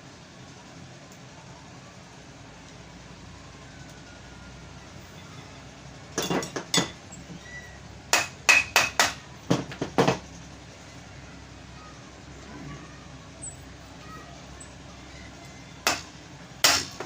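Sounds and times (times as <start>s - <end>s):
hammer tapping on metal: 8.1s - 10.2s, 15.8s - 17.0s.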